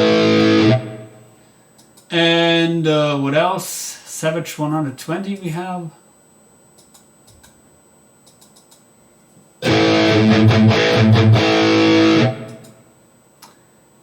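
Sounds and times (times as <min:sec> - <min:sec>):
distorted electric guitar chugging: 0:00.0 - 0:01.3, 0:09.6 - 0:12.8.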